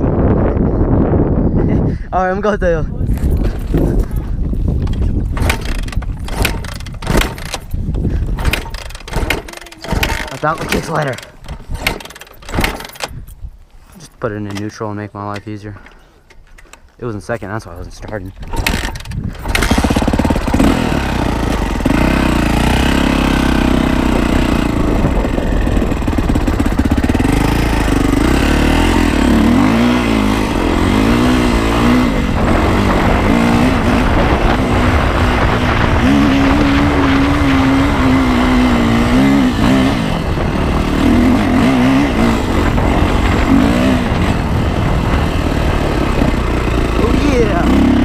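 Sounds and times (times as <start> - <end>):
motorcycle engine revving: 4.8 - 13.0, 18.3 - 48.0.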